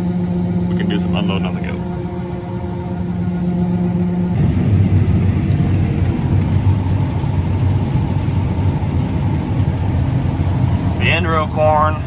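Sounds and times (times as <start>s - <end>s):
combine harvester engine: 0.0s - 12.0s.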